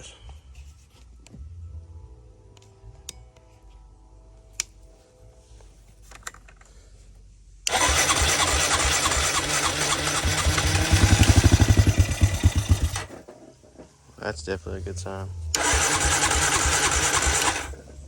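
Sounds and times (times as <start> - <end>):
engine firing in even beats: 7.7 - 13.2, 15.4 - 18.0
electric starter cranking: 7.7 - 13.3, 15.5 - 18.0.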